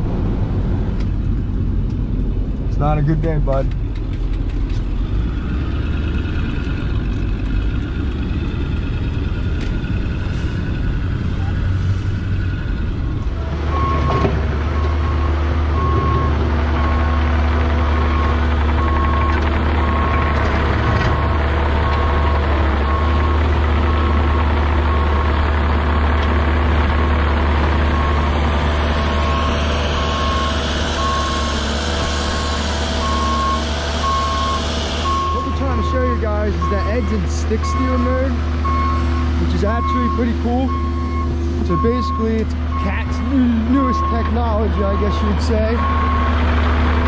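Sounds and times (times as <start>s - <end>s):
excavator engine hum: 0.0s - 47.0s
excavator travel alarm beeping: 13.7s - 25.3s, 27.9s - 28.3s, 29.2s - 31.6s, 33.0s - 46.4s.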